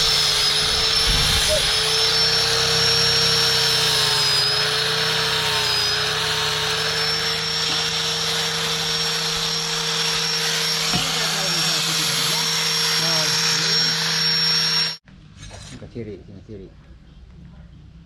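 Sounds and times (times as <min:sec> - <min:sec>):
electric grinder on steel: 0:00.0 - 0:15.0.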